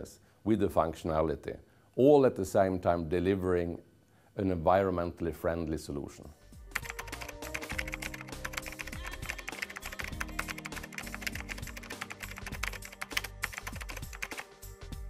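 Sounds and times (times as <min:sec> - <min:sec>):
background music with held notes: 0:06.2 - 0:15.0
keyboard typing clicks: 0:06.8 - 0:14.5.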